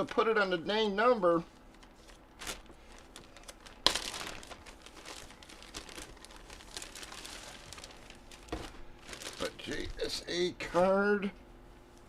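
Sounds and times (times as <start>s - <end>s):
card packaging crinkling: 1.7s - 10.2s.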